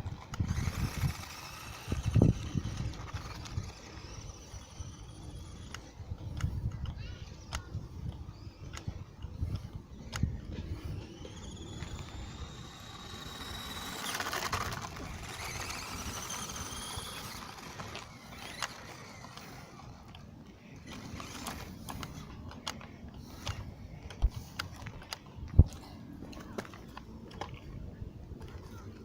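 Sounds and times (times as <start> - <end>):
wavering whine: 0.0 - 6.6, 8.2 - 22.6
small electric motor whining: 0.0 - 27.5.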